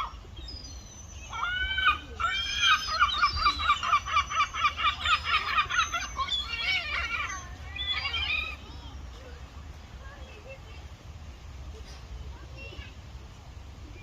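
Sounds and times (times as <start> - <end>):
seagull calling: 0.0 - 9.2.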